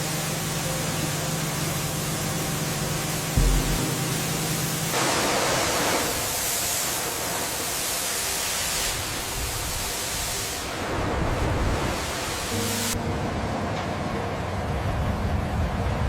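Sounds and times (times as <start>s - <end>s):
deep boom: 3.4s - 4.9s.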